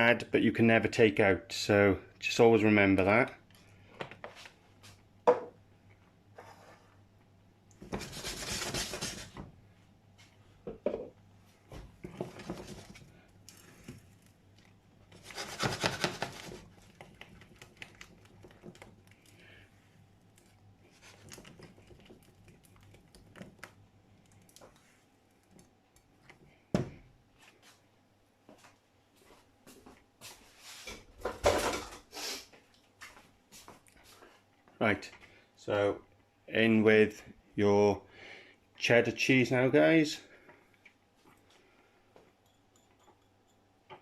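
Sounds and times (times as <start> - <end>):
utensil scraping a saucepan: 15.1 - 16.6.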